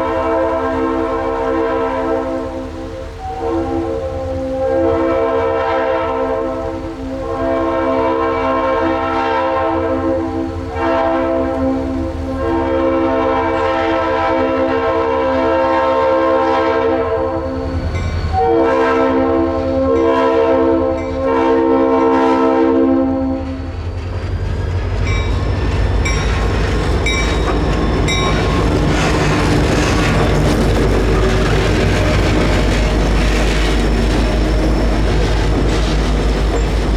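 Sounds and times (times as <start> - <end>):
locomotive air horn blasts: 0.0 - 23.7
wheels clicking over rail joints: 23.8 - 36.9.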